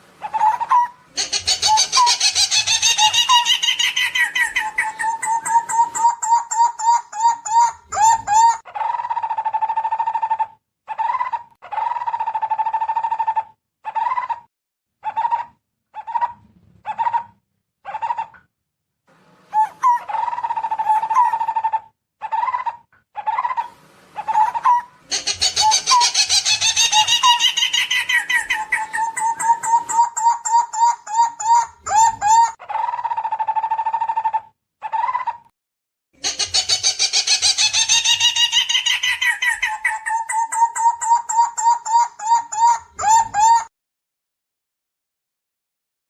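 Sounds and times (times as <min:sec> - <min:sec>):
birds chattering: 0:00.2 - 0:08.6, 0:19.6 - 0:32.6, 0:36.2 - 0:43.6.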